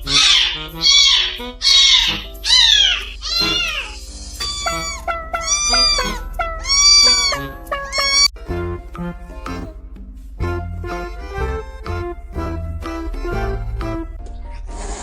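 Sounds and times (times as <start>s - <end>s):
cat meowing: 0.0s - 8.4s
background music: 0.0s - 15.0s.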